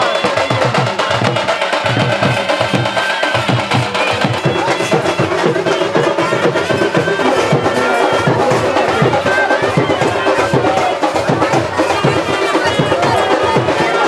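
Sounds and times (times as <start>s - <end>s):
loud music with drum beat: 0.0s - 14.0s.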